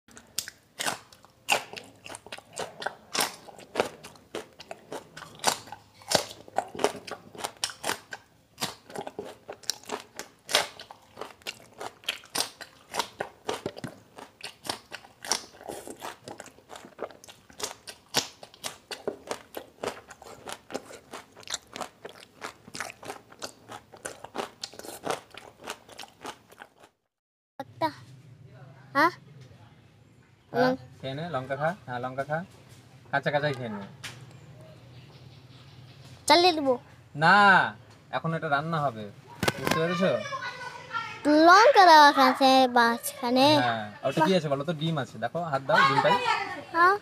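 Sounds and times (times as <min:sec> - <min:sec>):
chewing crunchy chillies: 0:00.1 - 0:27.0.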